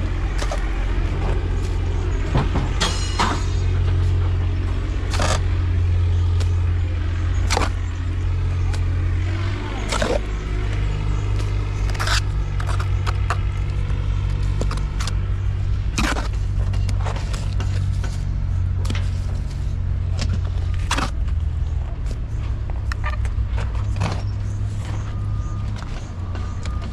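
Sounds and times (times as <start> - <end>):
heavy engine rumbling: 0.0 - 26.9
clanks knocks and scraping: 0.1 - 26.9.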